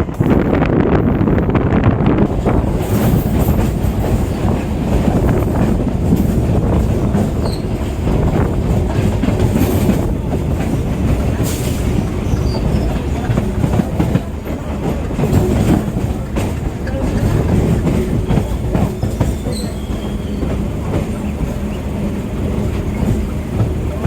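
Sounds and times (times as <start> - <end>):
train wheels clattering on track: 0.0 - 24.0
high wheel squeal: 7.4 - 7.8, 11.5 - 13.2, 16.8 - 22.0.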